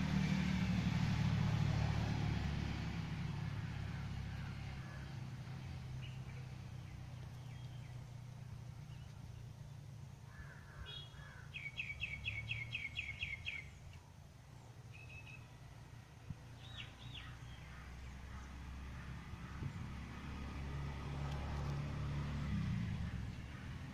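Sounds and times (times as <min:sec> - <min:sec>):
songbird trilling: 0:10.3 - 0:13.8, 0:14.9 - 0:15.5
short bird chirps: 0:14.9 - 0:15.5.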